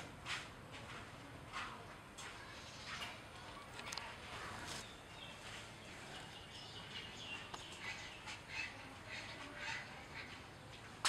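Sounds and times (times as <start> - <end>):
birds chirping: 3.5 - 11.0.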